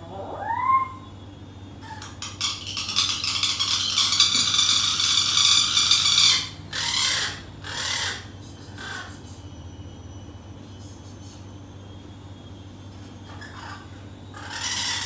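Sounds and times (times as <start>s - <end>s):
bird rasping call: 1.8s - 9.4s, 13.4s - 15.0s.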